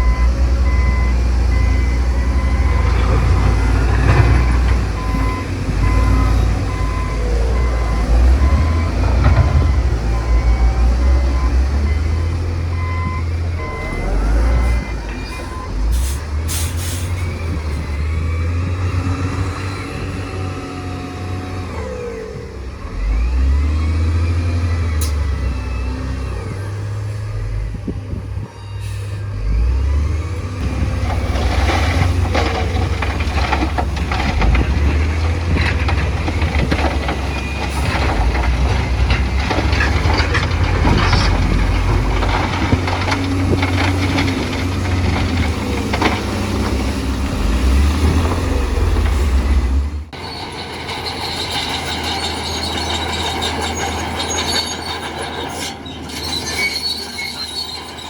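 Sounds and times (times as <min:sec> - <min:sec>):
diesel engines under load: 0:00.0 - 0:58.0
crackling and crunching: 0:30.6 - 0:47.4
faint squeals: 0:50.2 - 0:58.0.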